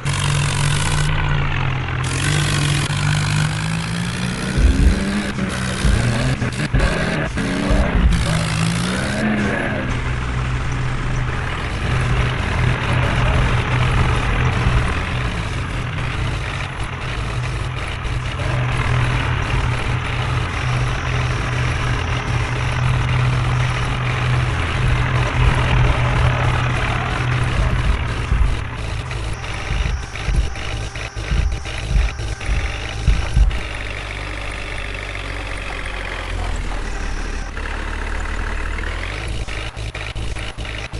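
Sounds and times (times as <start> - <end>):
heavy diesel engine running: 0.0 - 40.9
irregular knocks: 4.3 - 8.7, 10.7 - 34.3.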